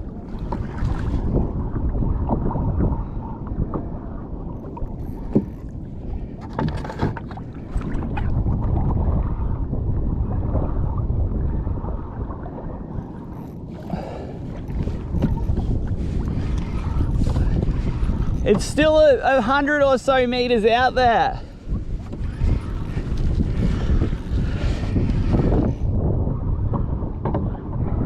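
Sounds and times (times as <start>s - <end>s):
water sloshing against kayak: 0.0s - 28.0s
wind on microphone: 0.0s - 28.0s.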